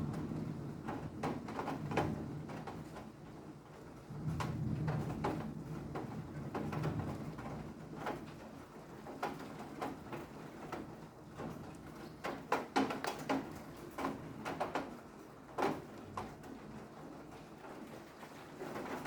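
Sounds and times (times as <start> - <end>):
raindrops tapping on hard surface: 9.1 - 16.6.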